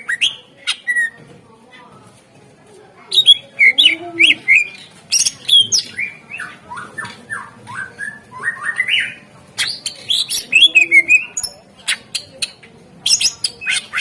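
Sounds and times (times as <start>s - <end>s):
bird singing with whistles and clicks: 3.2s - 14.0s.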